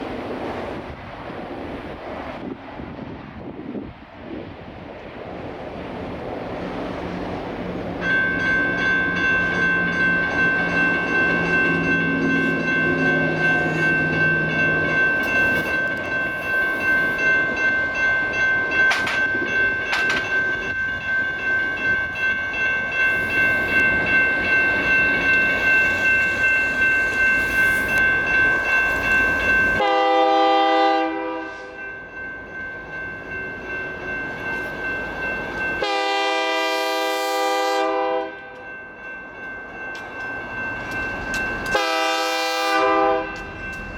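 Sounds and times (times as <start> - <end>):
railroad crossing bells ringing: 4.7 - 43.9
train horn: 29.8 - 31.8, 35.8 - 38.6, 41.7 - 43.4.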